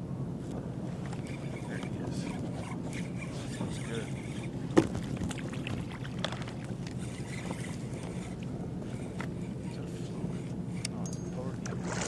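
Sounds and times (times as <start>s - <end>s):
water lapping against a hull: 0.6s - 12.0s
gear clicking and knocking on boat: 4.7s - 8.2s.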